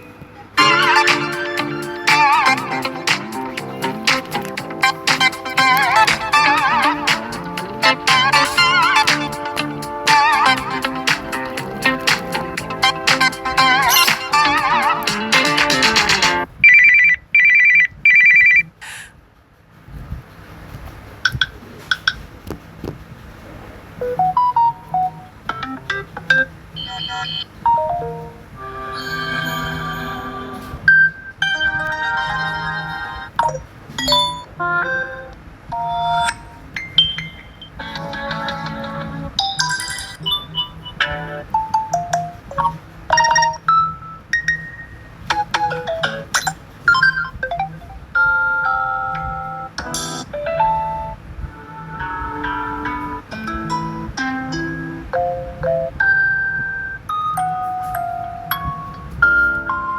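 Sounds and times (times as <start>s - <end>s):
held electronic chord: 0.6s - 16.5s
phone melody of stepped notes: 0.6s - 16.5s, 24.1s - 39.6s, 45.3s - 59.9s.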